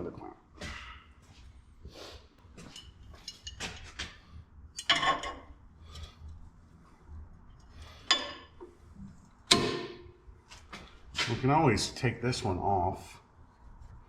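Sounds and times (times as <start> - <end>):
metal tools clinking and clanking: 2.6 - 4.2, 4.8 - 5.5, 8.0 - 8.6.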